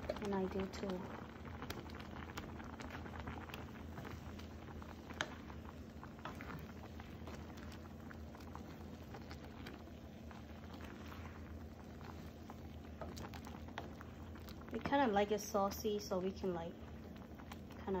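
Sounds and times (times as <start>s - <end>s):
sauce bubbling in a pot: 0.0s - 18.0s
steady low hum: 0.0s - 18.0s.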